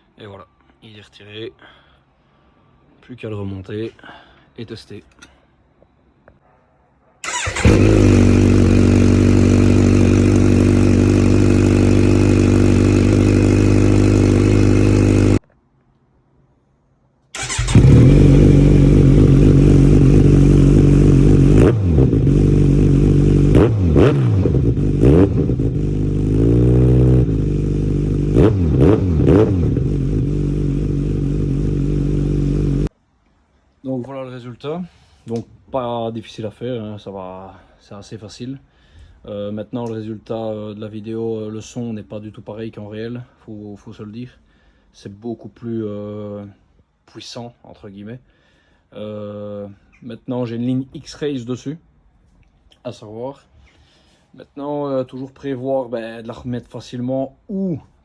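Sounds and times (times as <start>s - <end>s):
motorcycle engine idling and revving: 7.2s - 15.4s, 17.4s - 32.9s.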